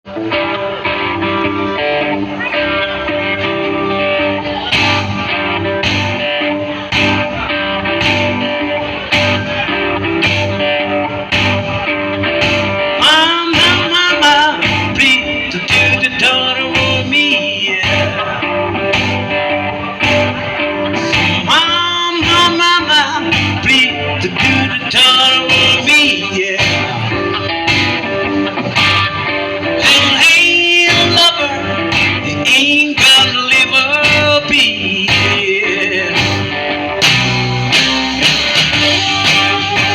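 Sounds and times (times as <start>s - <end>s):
electric guitar: 0.0s - 39.9s
blues band playing: 0.1s - 39.9s
steady drum beat: 4.7s - 11.8s, 12.4s - 13.0s, 18.9s - 21.6s, 36.2s - 39.9s.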